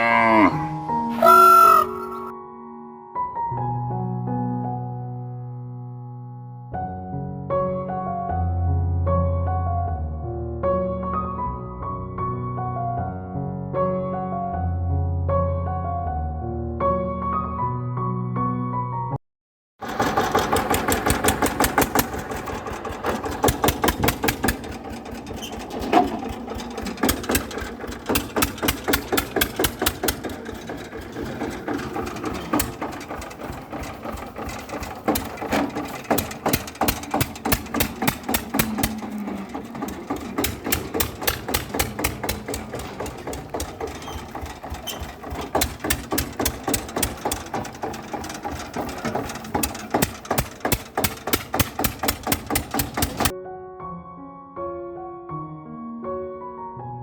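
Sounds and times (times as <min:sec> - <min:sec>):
mini tractor engine knocking: 0:19.8 - 0:53.3.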